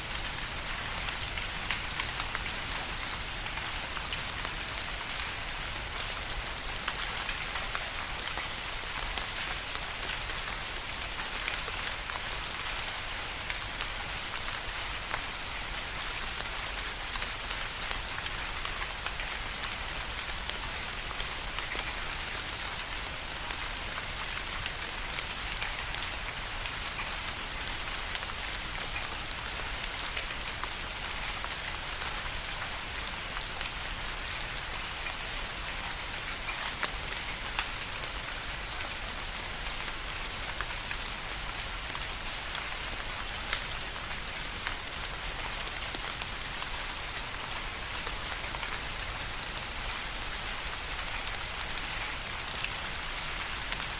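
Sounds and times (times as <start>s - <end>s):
steady rain pattering: 0.0s - 53.9s.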